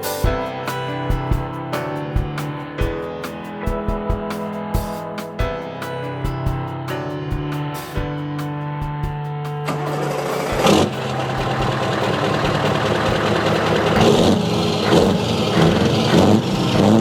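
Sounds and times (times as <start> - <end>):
music: 0.0 - 17.0
car engine running: 9.6 - 17.0.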